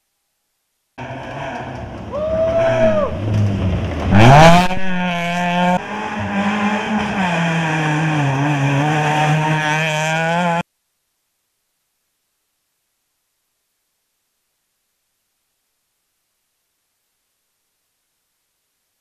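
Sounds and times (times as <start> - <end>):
rally car engine revving: 1.0 - 10.6.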